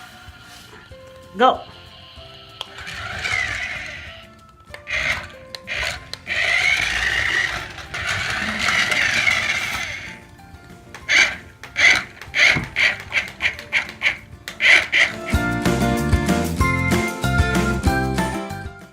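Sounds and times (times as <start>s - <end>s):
toy car motor whirring: 0.0s - 10.2s, 10.9s - 15.5s
toy electronic music: 0.0s - 10.2s, 10.9s - 15.7s
sound-effect pulses: 1.6s - 10.2s.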